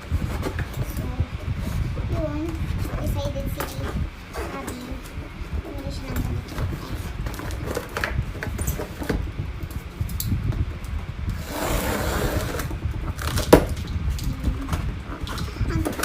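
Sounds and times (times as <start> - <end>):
cardboard scraping or rustling: 6.1 - 9.2, 11.3 - 13.8.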